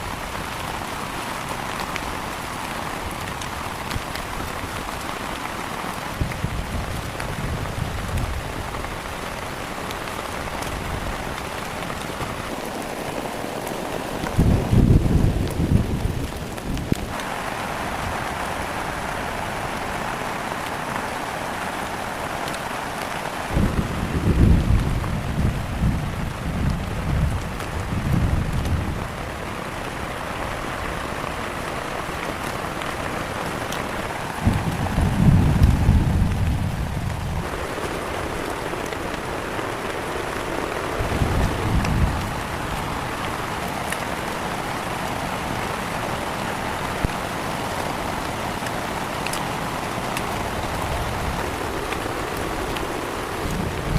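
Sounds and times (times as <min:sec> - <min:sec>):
heavy rain falling: 0:00.0 - 0:53.9
low gusting rumbles: 0:14.1 - 0:20.6, 0:21.8 - 0:31.4, 0:32.1 - 0:46.3, 0:47.0 - 0:53.9.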